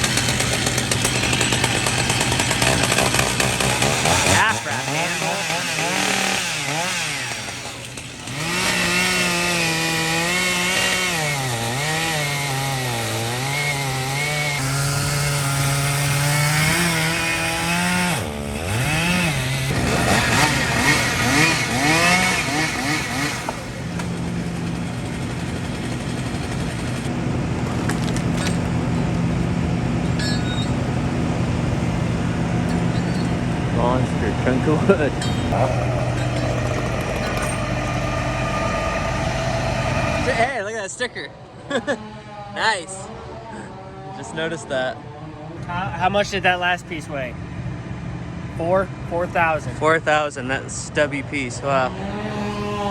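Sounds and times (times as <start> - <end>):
chainsaw cutting wood: 0.0 - 40.6, 51.9 - 52.9.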